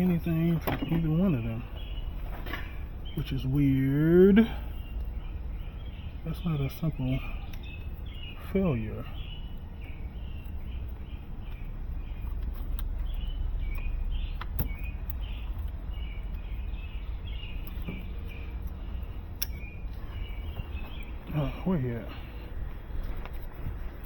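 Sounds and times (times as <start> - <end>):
birds chirping: 0.0 - 24.0
steady low rumble: 0.0 - 24.0
sharp clicks: 11.5 - 20.0.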